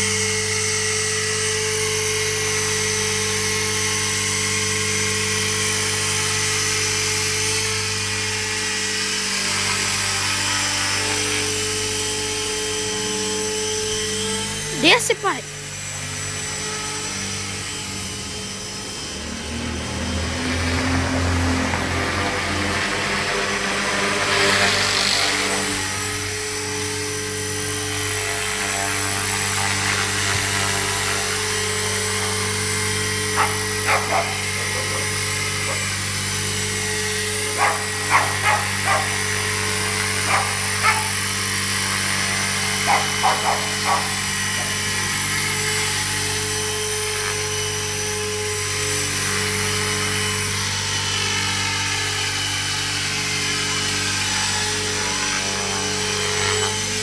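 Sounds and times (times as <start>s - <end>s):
steady mechanical hum: 0.0s - 57.0s
dog barking: 33.4s - 35.9s, 37.5s - 39.2s, 40.2s - 41.2s, 42.8s - 44.8s.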